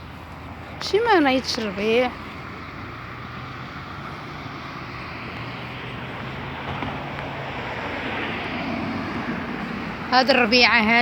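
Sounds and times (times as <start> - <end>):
distant engine drone: 0.0 - 11.0.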